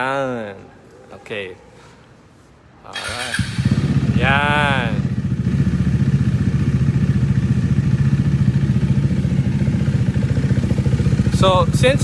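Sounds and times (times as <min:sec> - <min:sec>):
motorcycle engine idling: 0:03.0 - 0:12.0.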